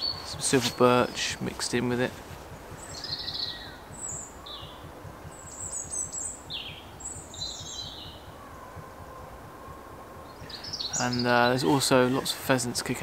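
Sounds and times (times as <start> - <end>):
low background rumble: 0.0 - 13.0
small birds chirping: 0.0 - 13.0.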